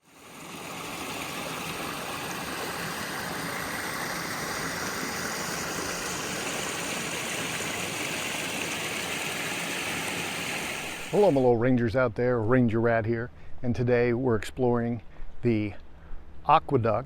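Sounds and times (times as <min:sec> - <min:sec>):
creek water rushing: 0:00.0 - 0:11.5.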